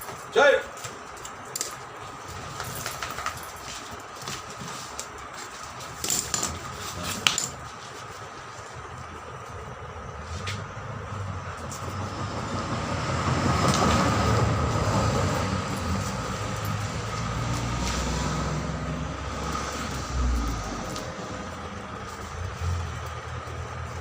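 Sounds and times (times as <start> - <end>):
heavy vehicle passing: 10.1 - 24.0.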